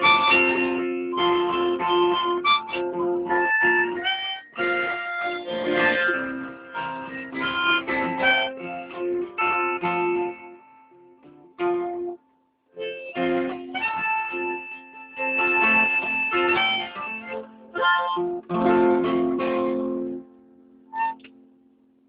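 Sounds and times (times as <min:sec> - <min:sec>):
harmonica playing: 0:00.0 - 0:12.1, 0:12.8 - 0:19.8
guitar: 0:00.0 - 0:22.0.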